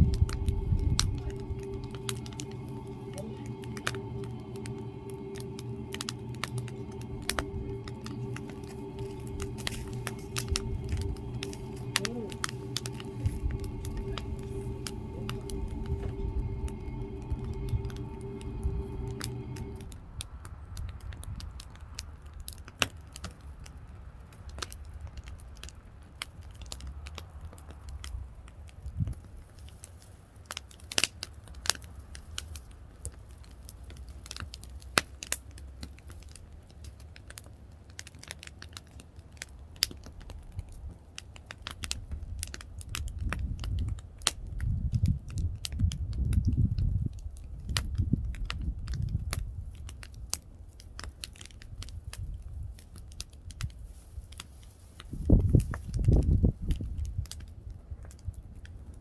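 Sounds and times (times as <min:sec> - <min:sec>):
wood fire crackling: 0:00.0 - 0:20.1
low rumble: 0:00.0 - 0:20.4.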